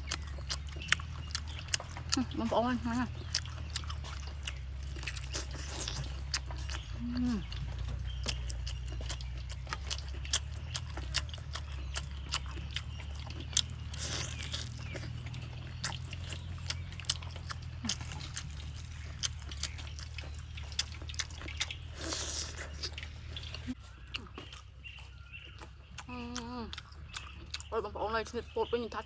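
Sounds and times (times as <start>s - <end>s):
chewing crispy food: 0.0s - 28.8s.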